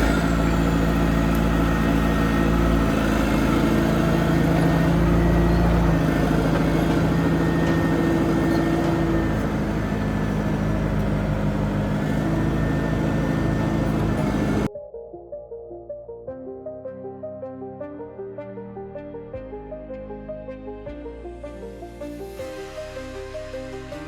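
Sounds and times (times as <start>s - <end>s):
loader engine running: 0.0s - 14.7s.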